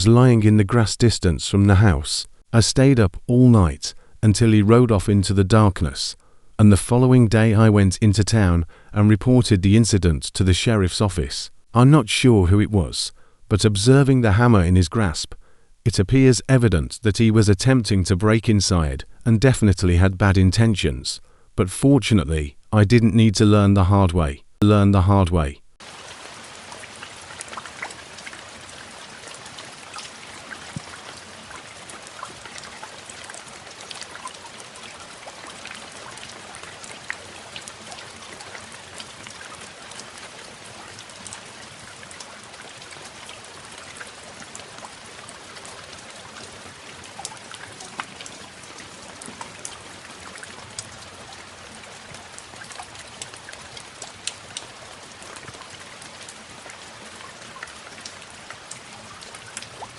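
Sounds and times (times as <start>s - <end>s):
steady rain hiss: 0.0s - 21.7s, 25.4s - 59.9s
raindrop ticks: 25.8s - 59.9s.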